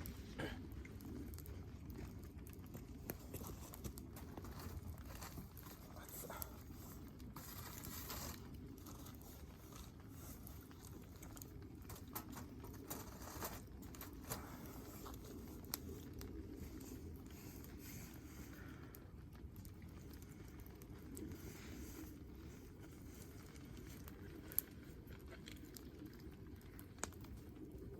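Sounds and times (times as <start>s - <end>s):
campfire crackling and popping: 0.0s - 27.9s.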